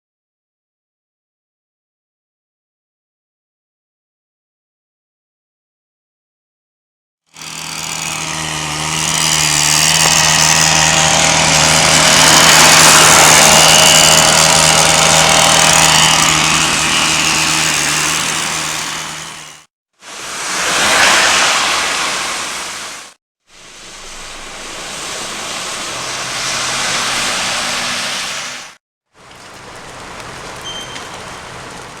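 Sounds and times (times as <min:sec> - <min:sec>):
engine hum: 0:07.4 - 0:32.0
tyres hissing on wet road: 0:07.4 - 0:32.0
rain: 0:20.0 - 0:32.0.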